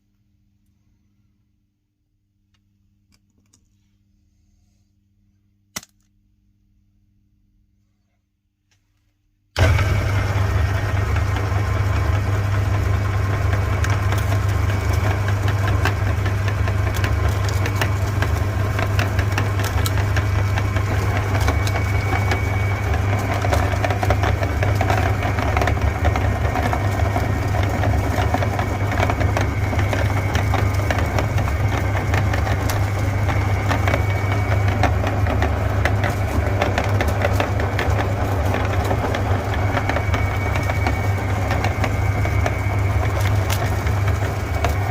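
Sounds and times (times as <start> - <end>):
electric meat grinder running: 9.6 - 44.9.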